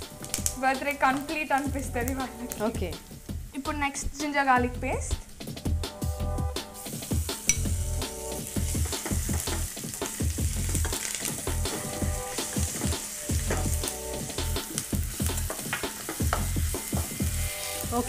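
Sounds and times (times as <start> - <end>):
music with steady beat: 0.0 - 18.0
paste sizzling in hot oil: 5.2 - 18.0.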